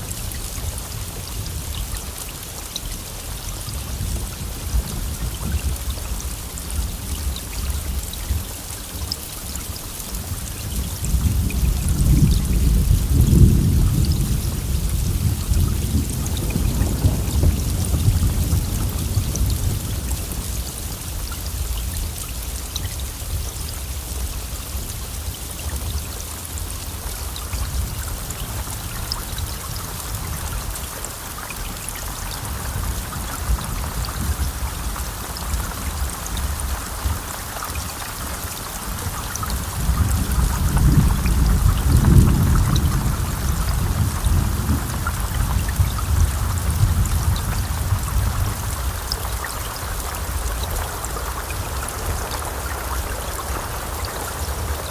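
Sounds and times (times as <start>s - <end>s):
heavy rain pattering: 0.0s - 54.9s
low thunder rumble: 10.3s - 22.0s, 27.0s - 54.9s.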